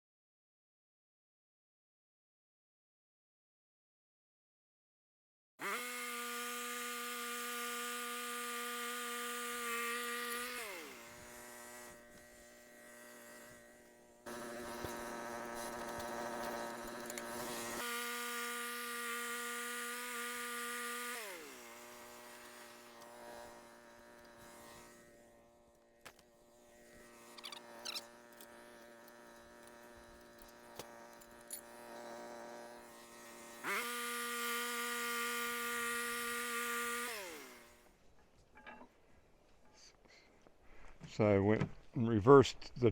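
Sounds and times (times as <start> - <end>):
power tool motor whining: 5.6 - 38.0.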